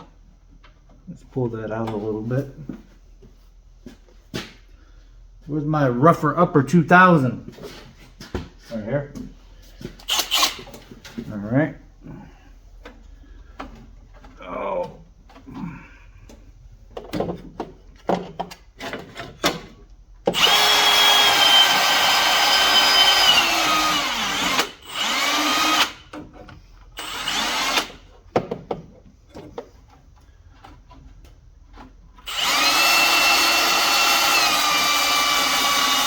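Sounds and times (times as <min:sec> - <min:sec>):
power tool motor whining: 0:10.0 - 0:10.7, 0:20.3 - 0:26.1, 0:27.0 - 0:28.1, 0:32.2 - 0:36.0
handling knocks and clicks: 0:16.2 - 0:19.8, 0:28.2 - 0:32.2.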